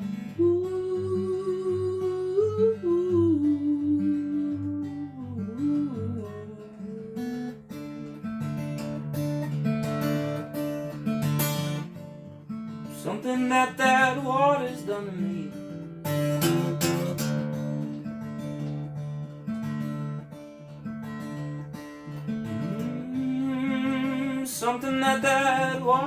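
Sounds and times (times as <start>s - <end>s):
acoustic guitar strumming: 0.0s - 26.0s
person humming a melody: 0.4s - 7.6s, 22.6s - 26.0s.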